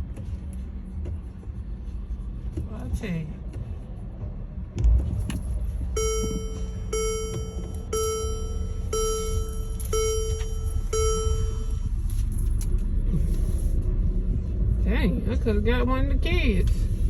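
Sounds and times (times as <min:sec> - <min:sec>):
low engine rumble: 0:00.0 - 0:17.0
buzzy electronic beeps: 0:06.0 - 0:11.9.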